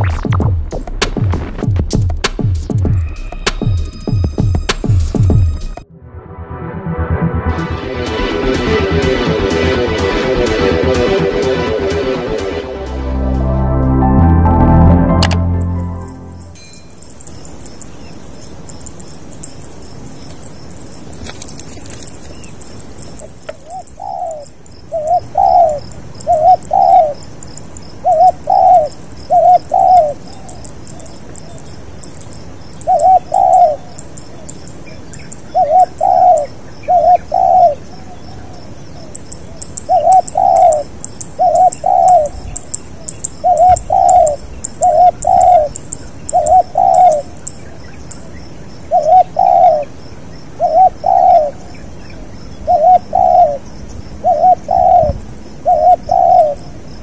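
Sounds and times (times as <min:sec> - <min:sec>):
small birds chirping: 0:16.6 - 0:57.0
dove cooing: 0:23.7 - 0:27.2, 0:28.0 - 0:31.1, 0:32.8 - 0:33.9, 0:35.5 - 0:38.6, 0:39.8 - 0:42.4, 0:43.0 - 0:47.4, 0:48.9 - 0:49.9, 0:50.6 - 0:51.6, 0:52.6 - 0:53.6, 0:54.2 - 0:56.6.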